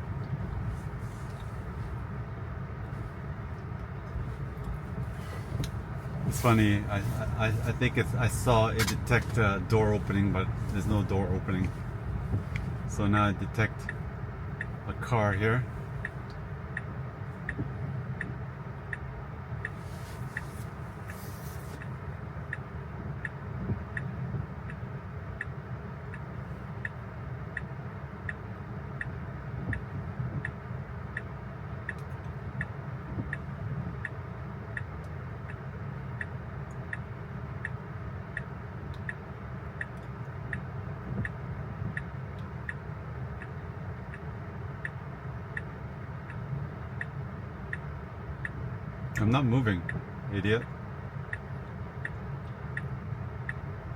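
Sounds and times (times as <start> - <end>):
low steady hum: 0.0 - 53.9
turn signal ticking: 0.0 - 53.9.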